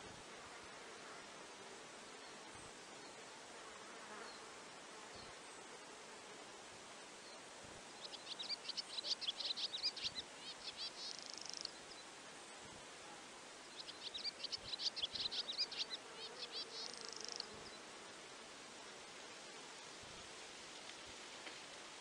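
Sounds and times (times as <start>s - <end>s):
faint outdoor hiss: 0.0s - 22.0s
songbird singing with trills: 8.0s - 12.1s, 13.7s - 17.5s.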